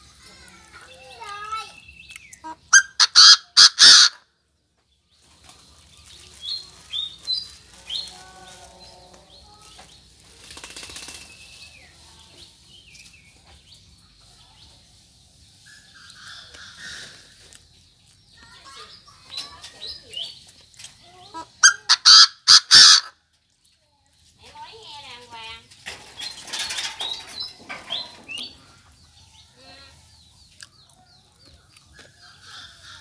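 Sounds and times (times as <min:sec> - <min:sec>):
loud harsh bird calls: 0:01.3 - 0:04.2, 0:21.4 - 0:23.1.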